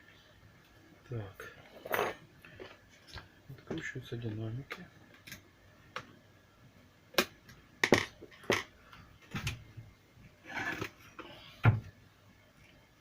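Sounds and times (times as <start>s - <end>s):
plastic parts clicking and knocking: 7.2s - 9.6s.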